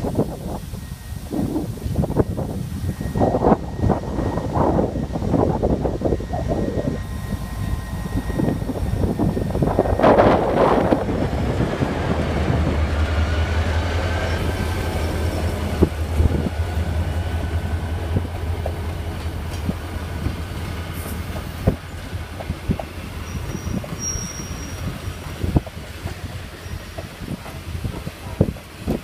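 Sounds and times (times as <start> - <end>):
diesel train engine drone: 0.0 - 29.0
wheel squeal: 23.2 - 25.1, 26.5 - 27.2.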